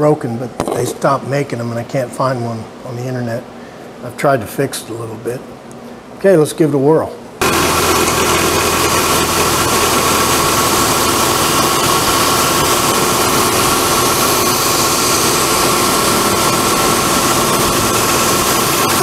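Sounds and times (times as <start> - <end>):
belt sander: 7.4 - 19.0
shop vacuum running: 7.4 - 19.0.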